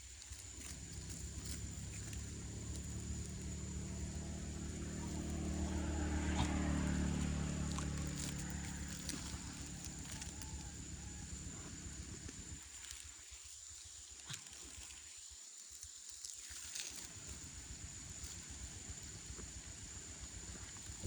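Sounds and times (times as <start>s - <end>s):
passing vehicle engine hum: 0.2s - 12.7s, 17.0s - 21.0s.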